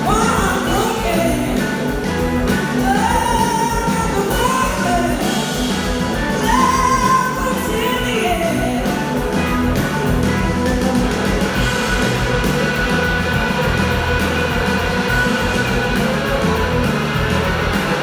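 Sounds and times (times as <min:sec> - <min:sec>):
person singing: 0:00.0 - 0:09.3
bass guitar: 0:00.0 - 0:18.0
drums: 0:00.0 - 0:18.0
electric guitar: 0:00.0 - 0:18.0.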